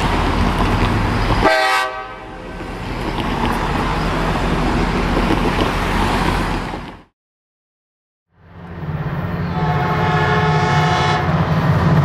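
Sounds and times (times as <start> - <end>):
train running rumble: 0.0 - 7.1, 8.5 - 12.0
train horn toot: 1.4 - 2.4, 9.5 - 11.4.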